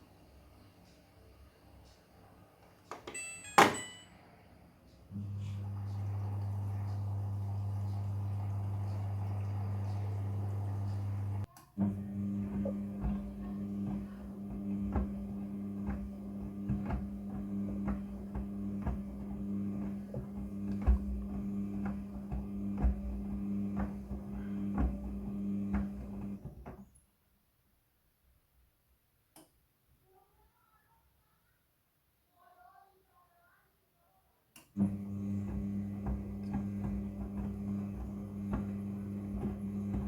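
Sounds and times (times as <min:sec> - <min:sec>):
washing machine running: 0:05.1 - 0:26.8, 0:34.8 - 0:40.0
click: 0:29.3 - 0:29.6, 0:34.5 - 0:34.8.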